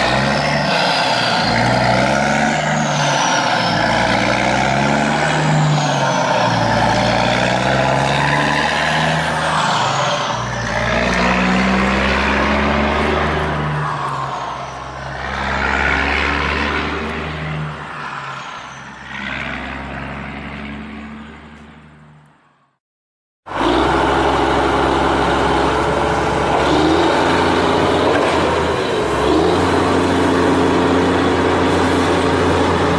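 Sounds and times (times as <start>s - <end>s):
vehicle engine revving: 0.0s - 14.0s, 15.1s - 17.8s, 23.5s - 32.9s.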